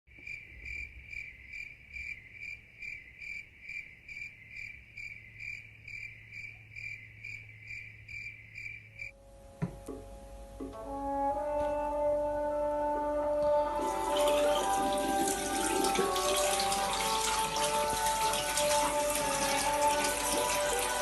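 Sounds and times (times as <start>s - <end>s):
cricket chirping: 0.1s - 9.2s.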